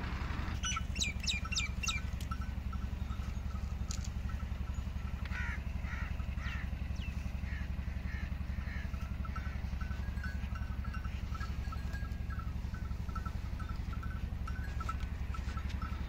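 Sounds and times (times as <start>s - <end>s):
steady low rumble: 0.0s - 16.0s
faint bird chirping: 0.6s - 3.6s
bird calling: 0.6s - 16.0s.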